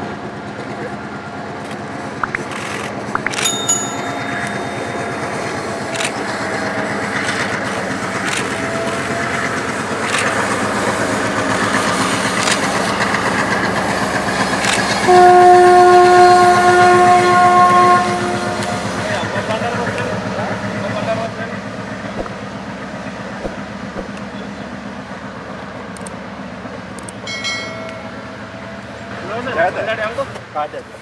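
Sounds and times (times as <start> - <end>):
diesel locomotive engine running: 0.0 - 31.0
wheels clicking over rails: 1.6 - 15.1
train horn blast: 15.0 - 19.0.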